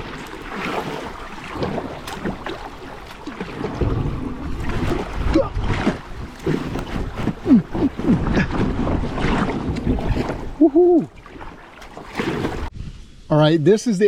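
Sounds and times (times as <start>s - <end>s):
water splashing around kayak: 0.0s - 12.8s
wind buffeting microphone: 3.5s - 11.5s.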